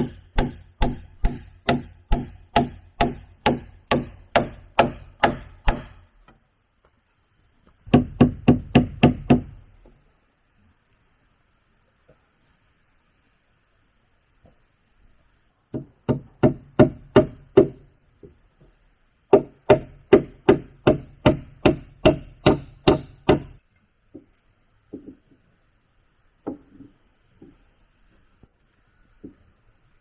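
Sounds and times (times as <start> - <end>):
tool blows striking wood: 0.0 - 6.0, 19.4 - 23.6.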